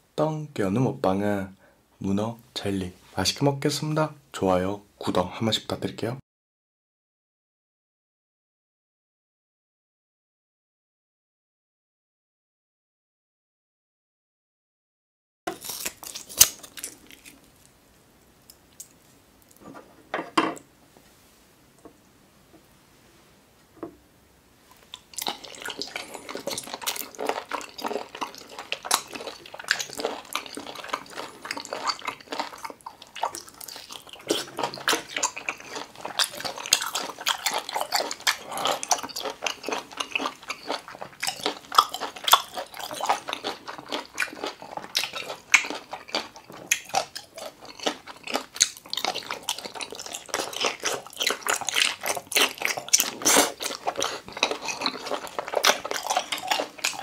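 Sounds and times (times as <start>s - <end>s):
wet chewing mouth sounds: 24.8s - 57.0s.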